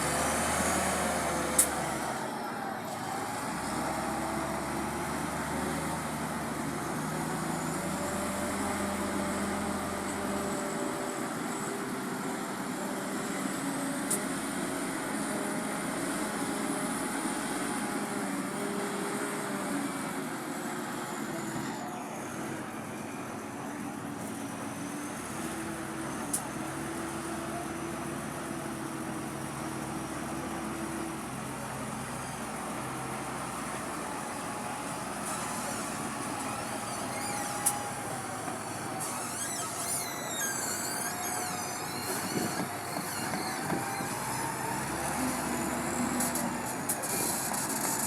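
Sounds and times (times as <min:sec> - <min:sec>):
truck engine running: 0:23.9 - 0:48.0.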